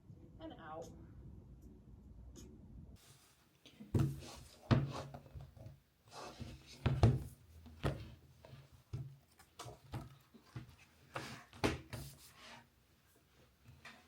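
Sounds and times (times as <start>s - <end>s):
hard objects knocking and thudding: 4.0s - 5.7s, 6.4s - 8.2s.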